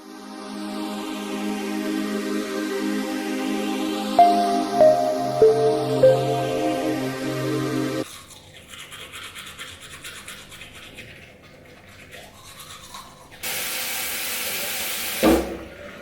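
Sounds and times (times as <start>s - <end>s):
teeth brushing: 8.6s - 13.4s.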